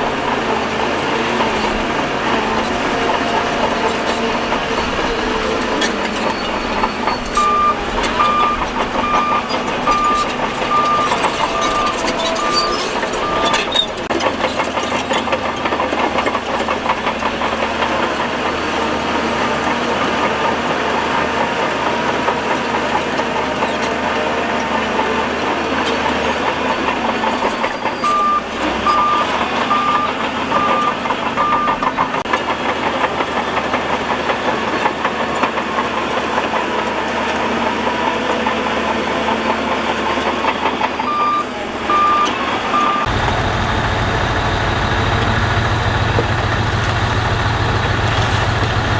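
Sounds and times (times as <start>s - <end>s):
heavy diesel machinery running: 0.0s - 48.9s
reversing alarm beeping: 6.2s - 13.8s, 28.0s - 32.0s, 41.0s - 46.0s.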